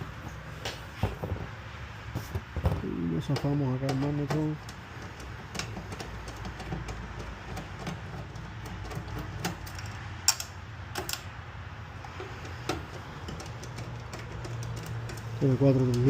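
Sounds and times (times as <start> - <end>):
metal parts and tools clicking: 3.2 - 16.0.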